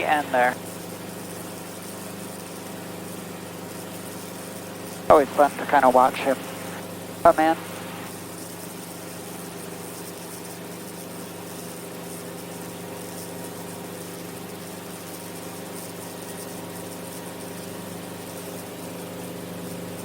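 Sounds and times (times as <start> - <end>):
helicopter engine and rotors droning: 0.0 - 14.1.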